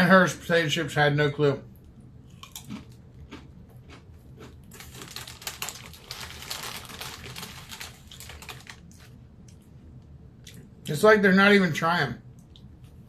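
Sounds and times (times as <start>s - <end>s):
chips crunching: 2.3s - 9.6s.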